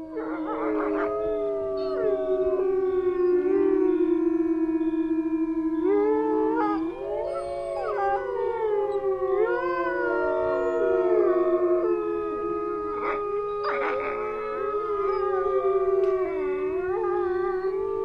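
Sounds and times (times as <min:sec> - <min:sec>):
rough noisy animal call: 0:00.0 - 0:02.2, 0:12.6 - 0:17.6
wolves howling: 0:00.0 - 0:18.0.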